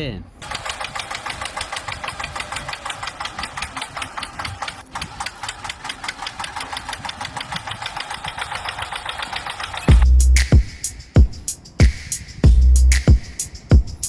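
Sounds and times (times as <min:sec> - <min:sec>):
toy vehicle engine clicking: 0:00.4 - 0:10.1.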